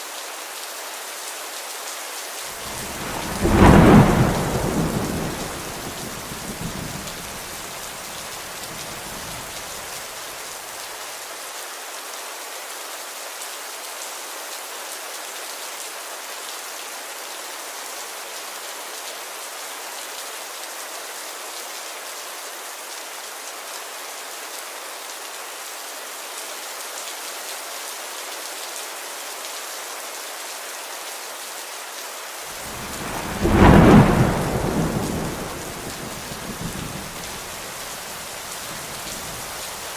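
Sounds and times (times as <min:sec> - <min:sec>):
steady rain: 0:00.0 - 0:39.9
rumble of thunder: 0:02.6 - 0:09.7, 0:32.6 - 0:39.8.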